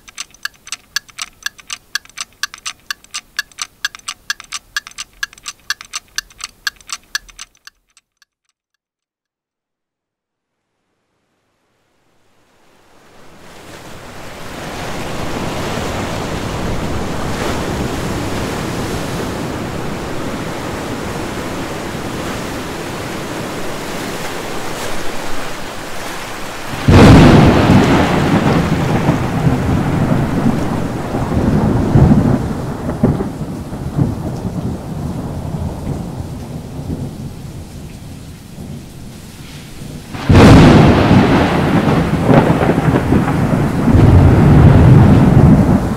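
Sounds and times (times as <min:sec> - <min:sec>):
steady rain: 0:12.4 - 0:45.9
thunder rumbling: 0:40.2 - 0:45.9.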